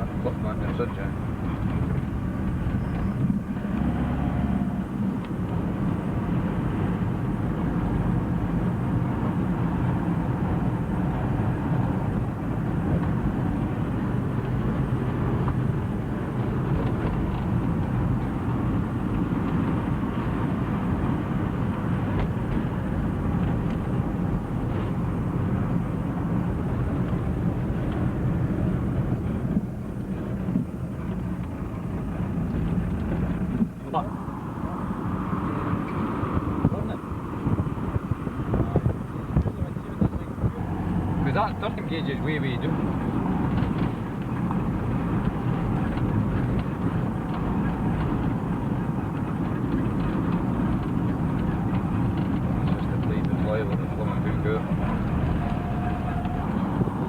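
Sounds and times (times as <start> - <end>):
engine and road rumble: 0.0 - 57.0.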